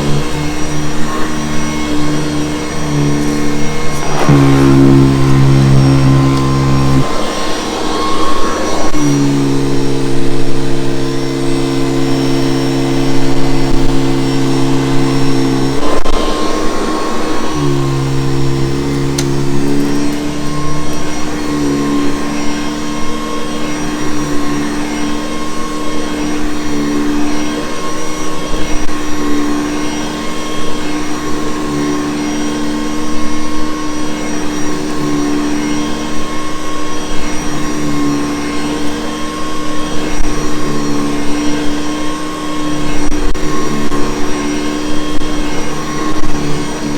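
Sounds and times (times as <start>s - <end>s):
vacuum cleaner motor hum: 0.0s - 46.9s
rushing air: 1.6s - 21.1s.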